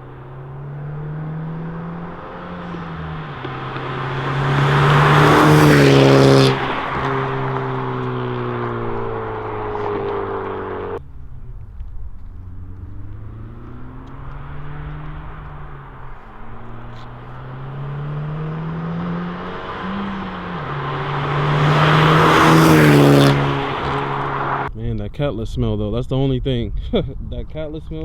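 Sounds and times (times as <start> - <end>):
car engine accelerating past: 0.0 - 24.7.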